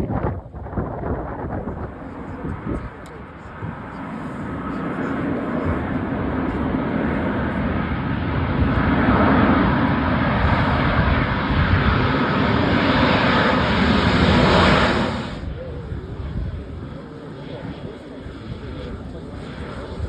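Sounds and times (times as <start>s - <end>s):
aeroplane engines passing overhead: 0.0s - 20.0s.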